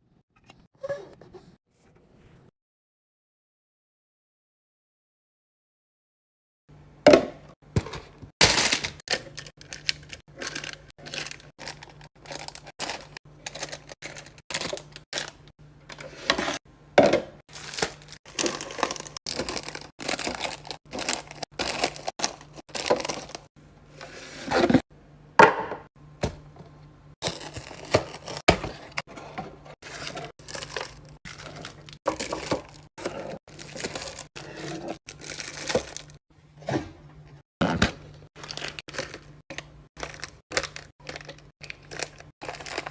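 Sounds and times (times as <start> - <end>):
plastic crinkling: 8.4 - 16.0, 17.5 - 23.5, 27.2 - 28.4, 29.8 - 36.2, 38.4 - 42.9.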